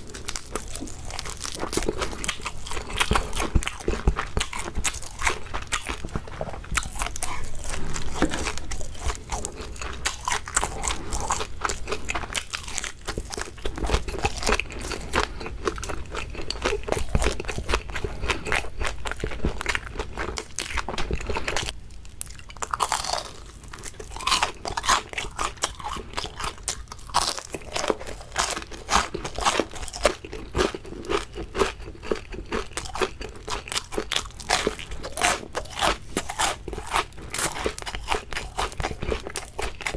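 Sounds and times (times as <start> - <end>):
crunching and chewing fried food: 0.0 - 39.9.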